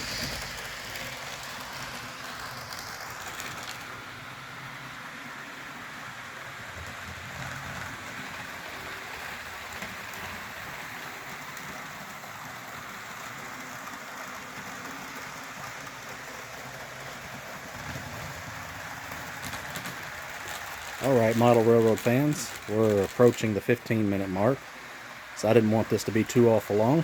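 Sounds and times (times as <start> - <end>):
metal wheels rolling on rails: 0.0 - 4.2, 6.4 - 24.7
small motors whirring: 0.0 - 4.4.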